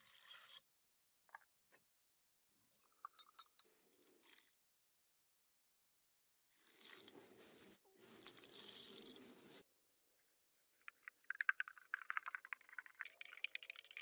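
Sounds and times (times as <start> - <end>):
rapid small clicks and scrapes: 0.0 - 0.7, 10.6 - 14.0
scraping and rubbing: 6.6 - 9.6.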